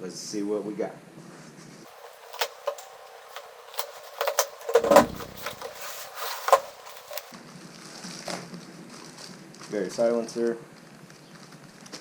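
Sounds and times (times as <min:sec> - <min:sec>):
cardboard box being handled: 0:01.9 - 0:07.3.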